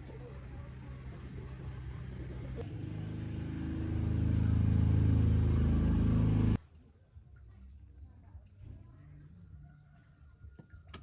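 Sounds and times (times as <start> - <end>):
tractor engine running: 0.0 - 6.6.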